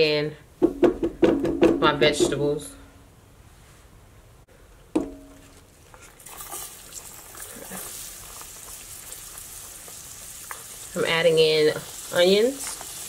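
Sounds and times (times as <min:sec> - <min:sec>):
short knock with ringing tone: 0:05.0 - 0:05.4
onions sizzling in a skillet: 0:06.4 - 0:13.0.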